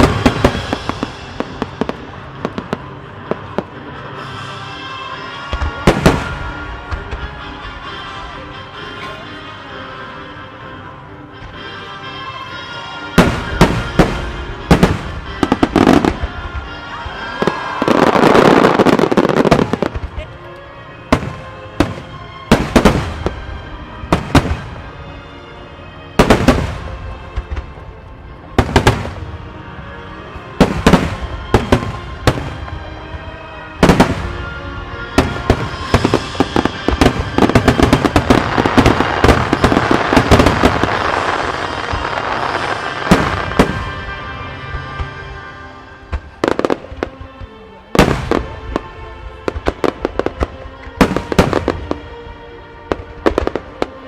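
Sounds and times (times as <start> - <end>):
firework bursts and crackle: 0.0 - 8.0, 13.1 - 20.3, 21.0 - 25.0, 26.2 - 27.8, 28.6 - 29.4, 30.6 - 45.3
music: 0.0 - 54.0.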